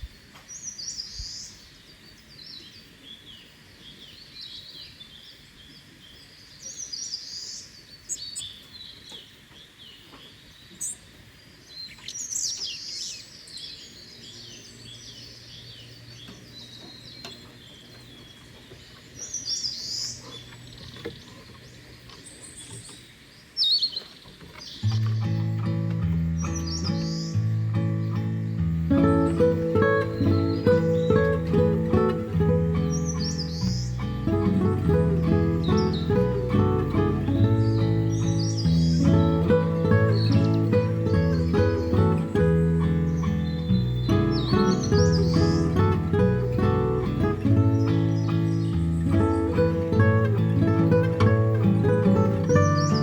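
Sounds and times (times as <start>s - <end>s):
forest background hiss: 0.0s - 53.0s
wild birds chirping: 0.0s - 53.0s
acoustic guitar music: 24.6s - 53.0s
low steady hum: 24.8s - 53.0s.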